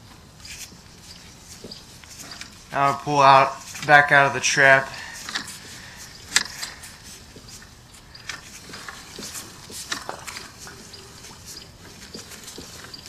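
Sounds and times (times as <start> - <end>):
camera scraping through pipe: 4.8 - 13.0.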